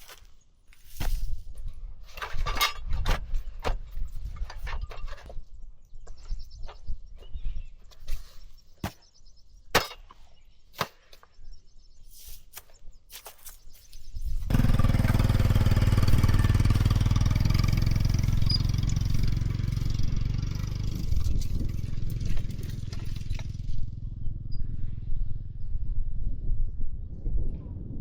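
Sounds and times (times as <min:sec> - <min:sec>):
motorcycle engine starting and rumbling: 0:14.4 - 0:27.1.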